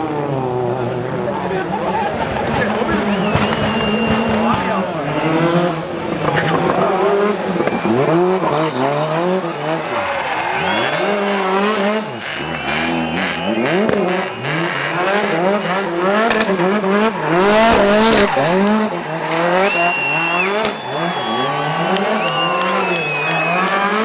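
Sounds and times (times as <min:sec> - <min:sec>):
rally car engine revving: 0:00.0 - 0:24.0
tyres squealing: 0:05.2 - 0:24.0.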